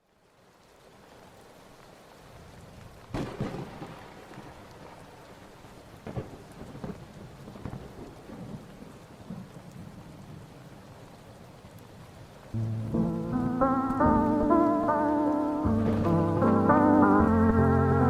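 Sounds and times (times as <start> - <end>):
steady rain: 0.0 - 18.0
thunder cracks: 3.2 - 4.1, 15.6 - 17.7.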